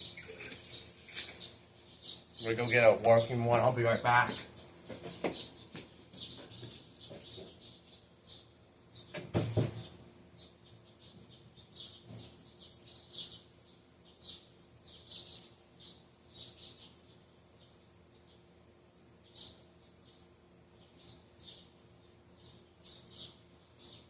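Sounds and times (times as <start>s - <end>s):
birds chirping: 0.0s - 24.0s
thump: 9.2s - 9.9s.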